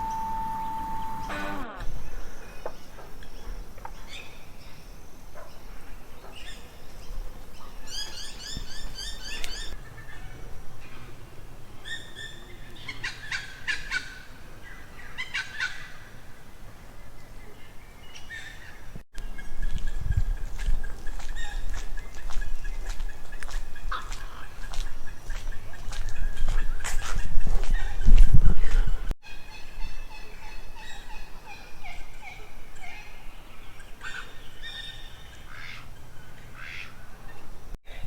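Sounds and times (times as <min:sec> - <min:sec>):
birds calling rapid high notes: 0:00.0 - 0:01.9.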